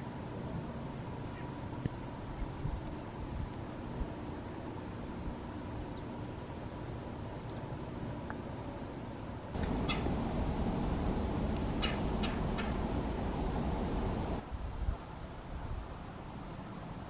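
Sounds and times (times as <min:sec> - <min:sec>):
steady background rumble: 0:09.5 - 0:14.4
high bird chirps: 0:09.6 - 0:13.0.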